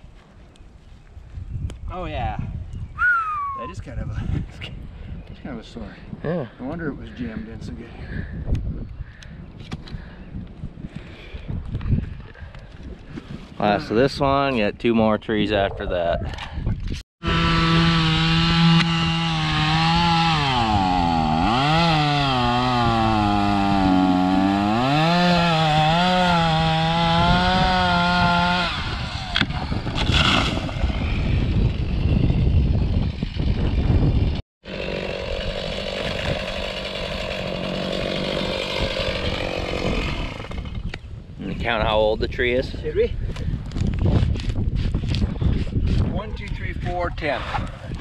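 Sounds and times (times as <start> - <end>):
chainsaw cutting wood: 17.2 - 41.0.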